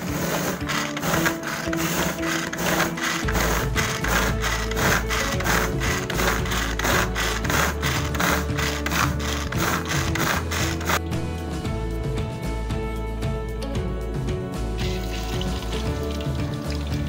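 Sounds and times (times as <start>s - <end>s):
pull string chopper whirring rattle: 0.0s - 11.0s.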